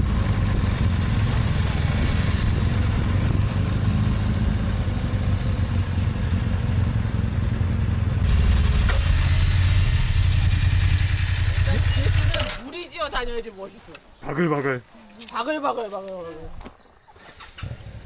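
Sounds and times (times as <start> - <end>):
motorcycle engine running: 0.0 - 12.6.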